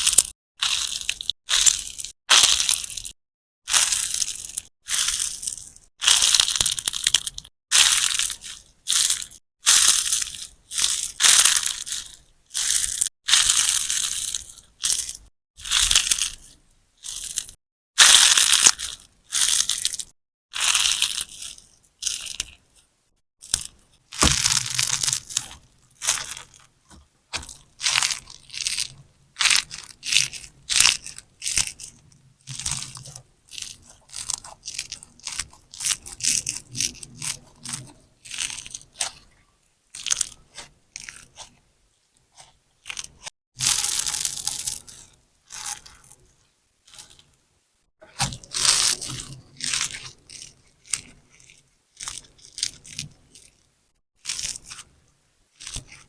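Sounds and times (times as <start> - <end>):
slime sponge squelching: 23.4 - 39.3.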